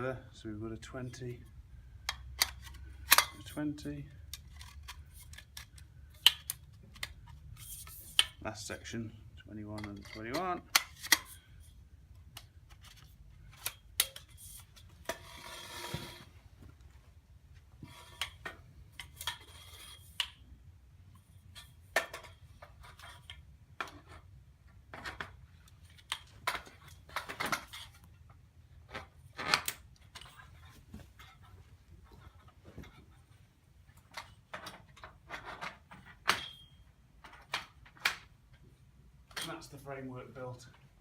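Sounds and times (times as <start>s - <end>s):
metal tubes clicking and clinking: 0.8s - 11.7s.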